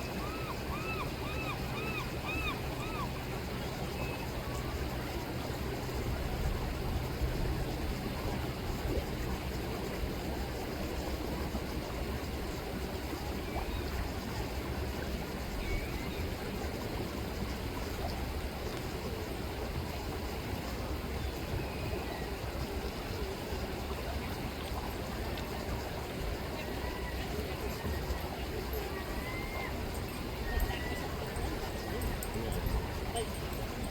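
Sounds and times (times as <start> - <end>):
faint gull calls: 0.0 - 3.2.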